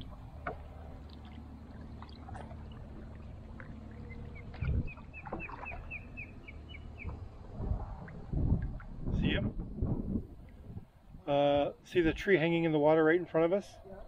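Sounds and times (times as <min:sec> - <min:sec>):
low rumble of wind: 0:00.0 - 0:14.0
water: 0:00.0 - 0:14.0
bird chirping: 0:03.9 - 0:07.3.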